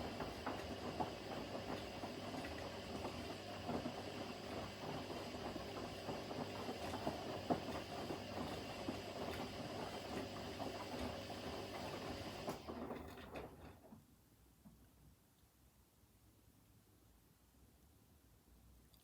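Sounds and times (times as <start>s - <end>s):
washing machine drum tumbling: 0.0s - 13.8s.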